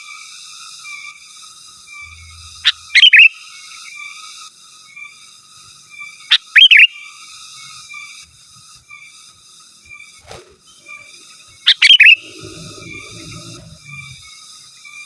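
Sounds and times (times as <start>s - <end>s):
faint steady chirring: 1.8s - 3.5s, 10.2s - 14.4s
bird whistled warbling song: 2.1s - 3.4s, 10.3s - 14.2s.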